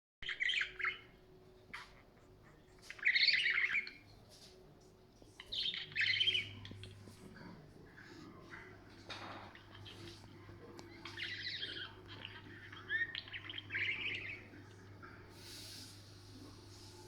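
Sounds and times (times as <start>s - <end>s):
budgerigar chattering: 10.9s - 14.5s.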